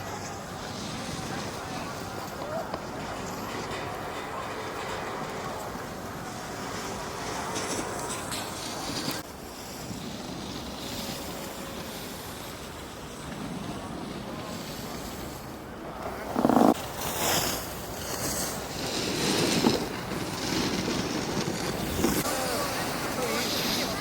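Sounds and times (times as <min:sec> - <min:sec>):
skis scraping: 0:00.0 - 0:24.0
skis hissing on snow: 0:16.4 - 0:24.0
wind on microphone: 0:18.6 - 0:24.0.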